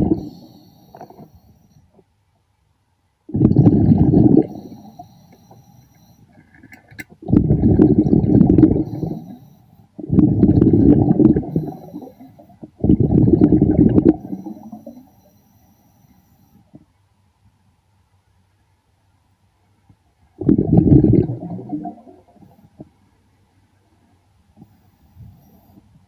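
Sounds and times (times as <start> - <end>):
underwater air bubbles rushing: 0.0 - 0.4, 3.3 - 5.2, 7.2 - 9.4, 10.0 - 15.0, 20.4 - 22.6.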